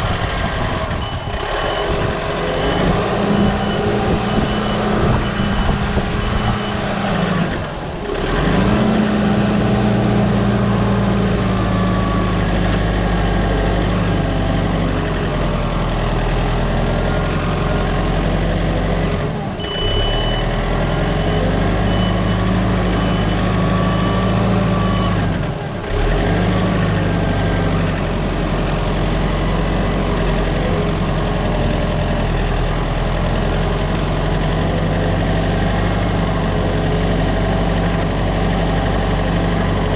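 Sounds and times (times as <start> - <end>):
reversing alarm beeps: 0.6 - 7.7, 10.4 - 14.8, 19.6 - 25.6.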